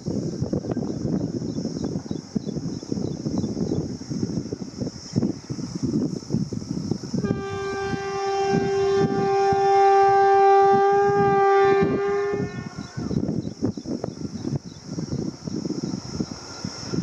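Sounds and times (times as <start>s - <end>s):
train rumbling: 0.0s - 17.0s
train horn blast: 7.2s - 13.2s.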